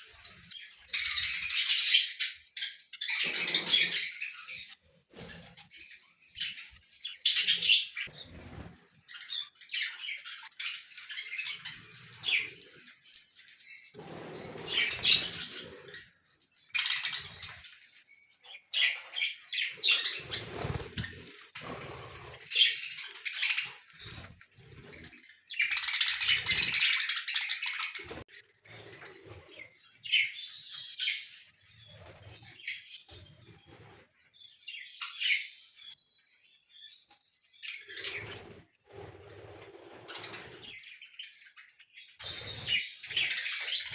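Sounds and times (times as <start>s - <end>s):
budgerigars chirping and chattering: 0.0s - 16.1s, 16.8s - 24.8s, 25.4s - 28.2s, 29.2s - 36.0s, 36.7s - 38.5s, 40.0s - 43.9s
wings flapping: 13.9s - 16.0s, 19.8s - 25.1s.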